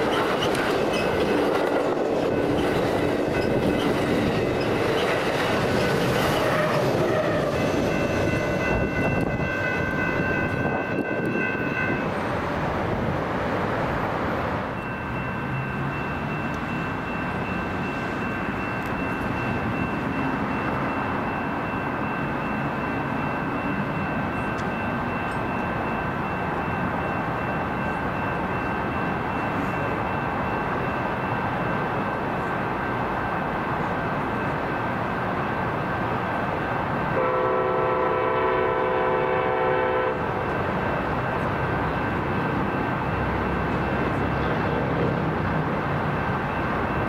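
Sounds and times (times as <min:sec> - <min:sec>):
train wheels clattering on rails: 0:00.0 - 0:12.5.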